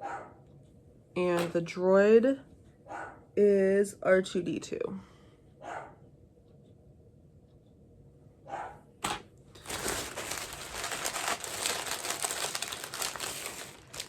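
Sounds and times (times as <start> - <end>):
plastic packaging crinkling: 9.6 - 14.0.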